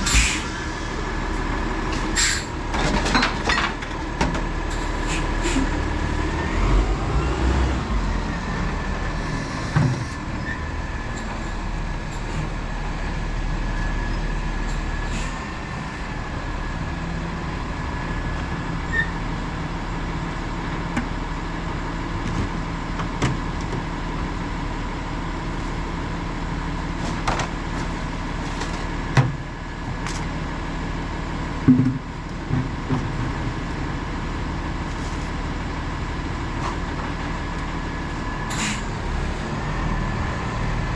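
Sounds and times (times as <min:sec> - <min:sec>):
garbage truck engine whining: 0:00.0 - 0:22.2, 0:33.3 - 0:40.9.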